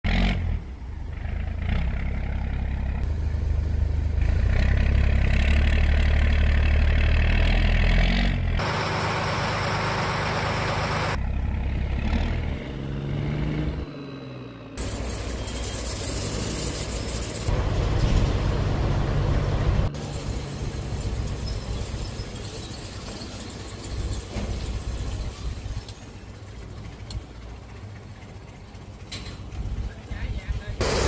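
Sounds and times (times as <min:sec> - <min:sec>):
boat engine droning: 0:08.6 - 0:11.4
loud rushing noise: 0:30.8 - 0:31.0.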